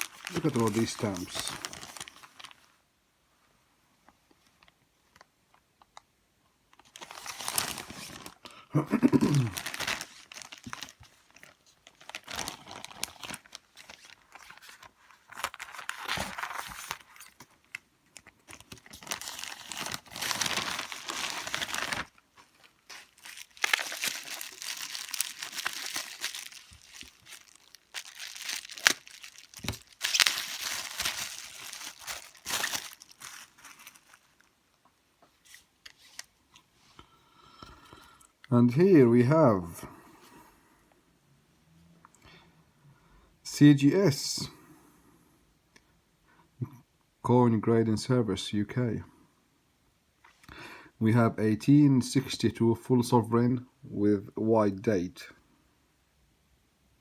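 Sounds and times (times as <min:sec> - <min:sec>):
packaging being torn and crinkled: 0:00.0 - 0:02.6, 0:06.8 - 0:34.5.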